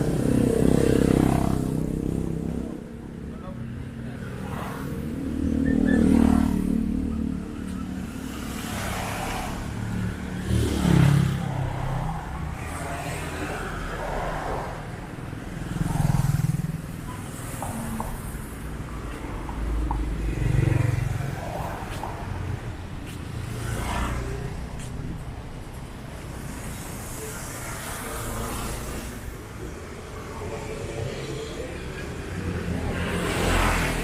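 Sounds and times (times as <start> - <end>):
cars passing close by: 0.0 - 34.0.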